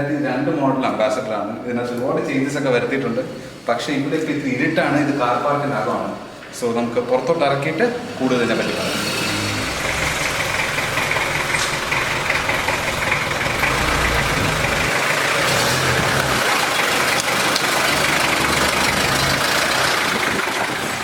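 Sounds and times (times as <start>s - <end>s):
diesel engine running: 7.1s - 21.0s
heavy rain hissing: 7.5s - 21.0s.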